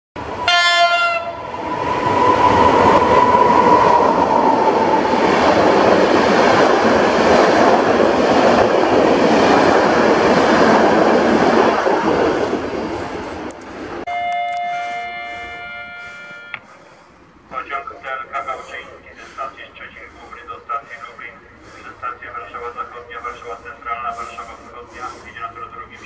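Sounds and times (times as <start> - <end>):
train coaches rushing past: 0.2 - 26.0
locomotive horn blast: 0.4 - 1.4, 14.1 - 16.8.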